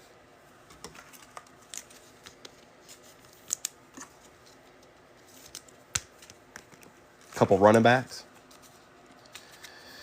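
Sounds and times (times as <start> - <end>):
trading cards flipped through: 0.8 - 7.4.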